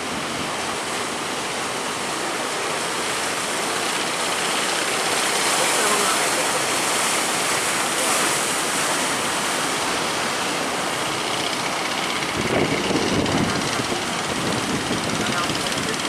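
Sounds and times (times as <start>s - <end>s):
ocean surf breaking: 0.0s - 16.0s
wind on microphone: 12.0s - 16.0s.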